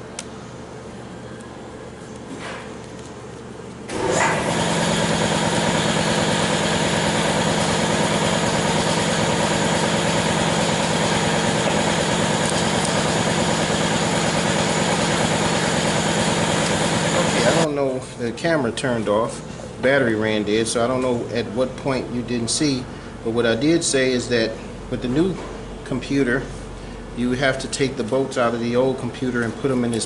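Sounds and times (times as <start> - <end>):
machine humming: 3.9 - 17.8.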